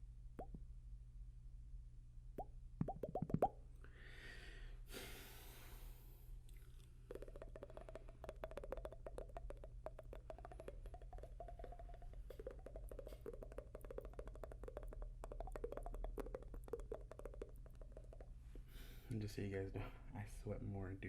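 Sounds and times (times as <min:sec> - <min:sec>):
wet tongue clicks and pops: 0:00.4 - 0:00.6, 0:02.4 - 0:03.6, 0:06.4 - 0:18.9.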